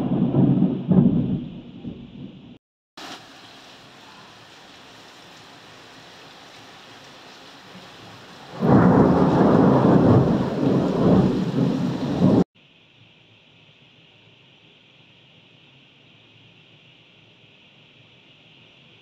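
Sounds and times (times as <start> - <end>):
thunder clap rumbling: 0.0 - 2.6, 8.4 - 12.4
steady rain falling: 0.0 - 19.0.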